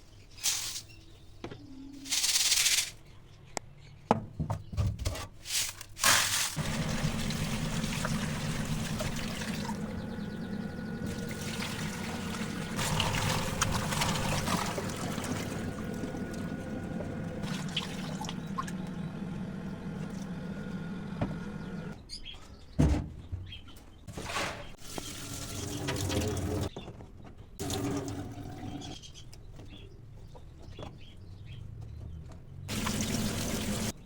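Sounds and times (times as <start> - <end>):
water splashing into a container: 6.0 - 10.1, 11.0 - 18.8, 27.6 - 28.7, 32.7 - 34.0.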